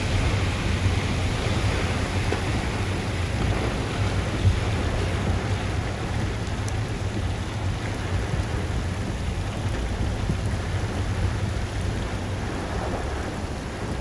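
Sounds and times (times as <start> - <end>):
heavy rain falling: 0.0 - 14.0
wind rumble on microphone: 0.0 - 14.0.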